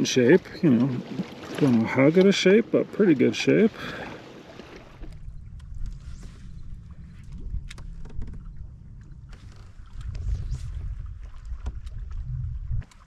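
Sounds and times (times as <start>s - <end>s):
low rumble: 4.8s - 13.0s
small clicks and knocks: 7.3s - 8.5s.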